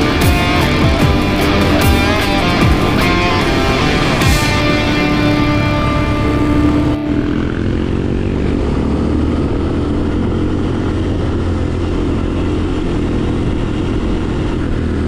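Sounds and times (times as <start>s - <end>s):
off-road vehicle engine rumble: 0.0s - 15.0s.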